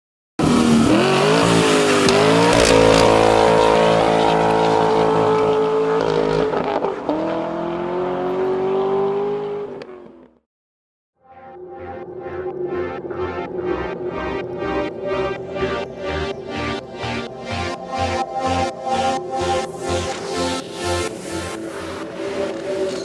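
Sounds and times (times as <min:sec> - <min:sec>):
truck engine accelerating: 0:00.4 - 0:09.7.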